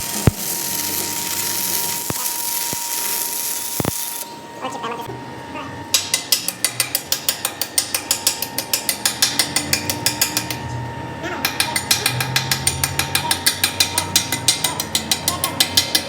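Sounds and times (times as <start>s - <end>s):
machine hum: 0.0s - 5.9s.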